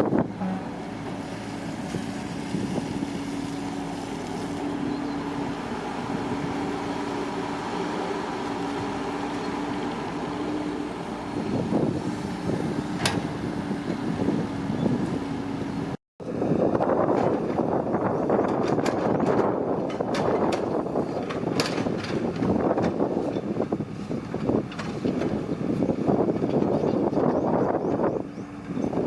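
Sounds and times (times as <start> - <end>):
engine humming: 0.0 - 29.0.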